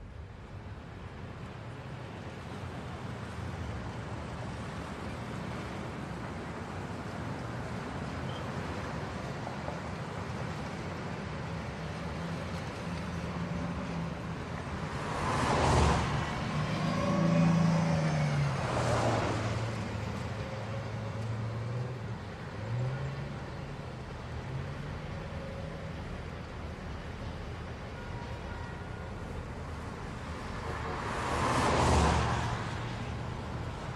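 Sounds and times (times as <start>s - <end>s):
car driving past: 14.7s - 22.0s, 30.2s - 33.9s.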